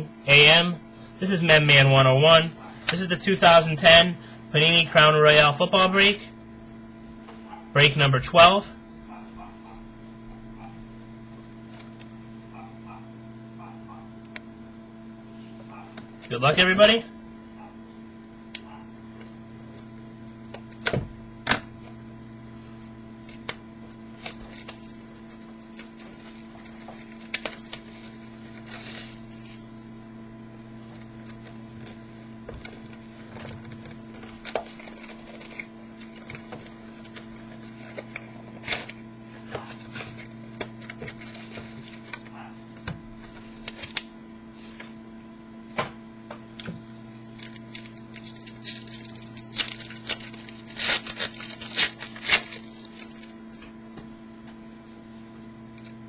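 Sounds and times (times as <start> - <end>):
steady electrical hum: 0.0 - 56.0
card packs being handled and opened: 22.5 - 29.8, 30.8 - 44.9, 46.8 - 53.4.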